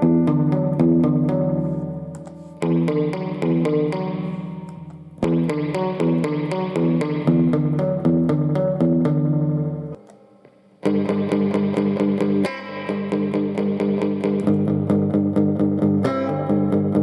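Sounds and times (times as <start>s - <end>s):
overdriven electric guitar: 0.0s - 17.0s.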